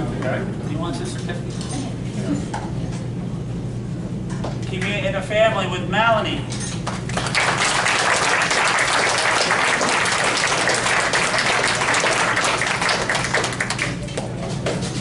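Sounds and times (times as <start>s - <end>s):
audience applauding: 7.0s - 14.1s.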